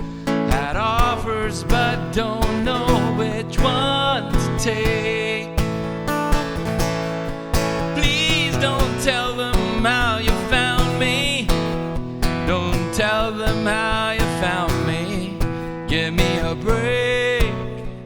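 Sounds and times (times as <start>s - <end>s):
strummed acoustic guitar: 0.0s - 18.0s.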